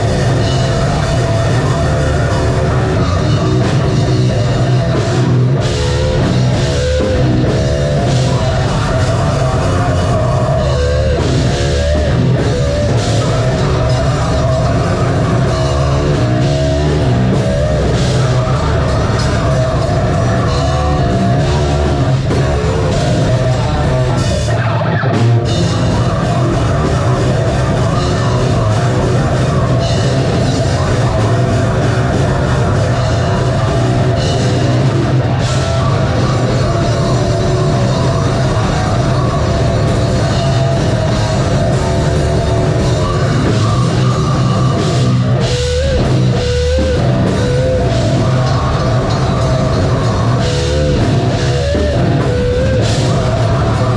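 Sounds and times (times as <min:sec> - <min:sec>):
metal band playing live: 0:00.0 - 0:53.9.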